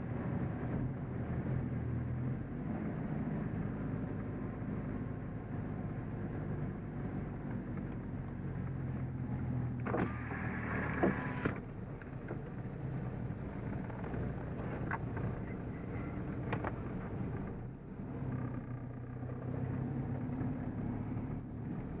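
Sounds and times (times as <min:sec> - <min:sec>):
tyre noise on wet road: 0:06.3 - 0:18.6
diesel engine running: 0:08.1 - 0:22.0.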